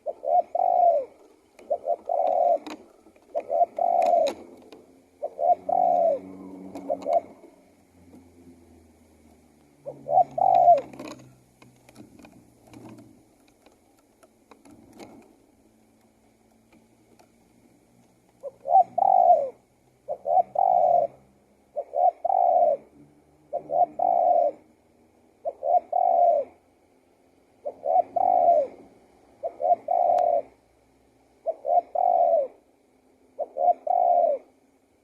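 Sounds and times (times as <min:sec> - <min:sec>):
dove cooing: 0:00.0 - 0:08.9, 0:09.7 - 0:13.2, 0:18.4 - 0:24.8, 0:25.4 - 0:26.6, 0:27.6 - 0:30.7, 0:31.4 - 0:32.7, 0:33.3 - 0:34.6.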